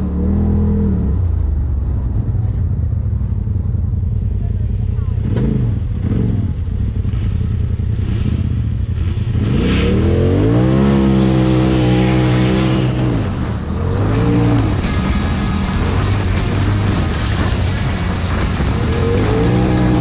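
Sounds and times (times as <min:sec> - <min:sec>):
utility vehicle engine revving: 0:05.1 - 0:20.0.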